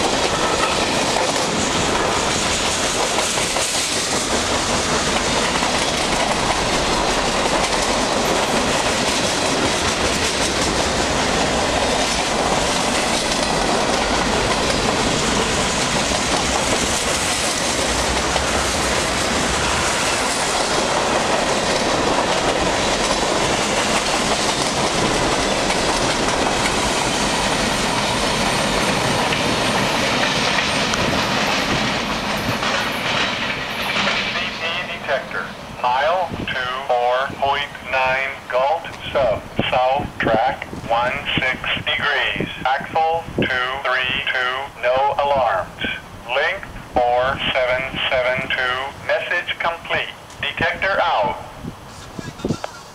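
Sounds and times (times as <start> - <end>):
wheels clacking over rails: 0.0 - 34.9
freight train rumbling past: 0.0 - 52.9.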